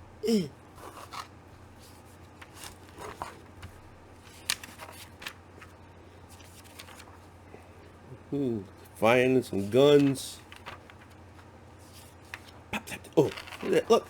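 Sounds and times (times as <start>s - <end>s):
paper pages turning: 0.8s - 7.3s, 9.6s - 12.6s, 13.2s - 14.0s
crisp paper snap: 4.3s - 5.4s.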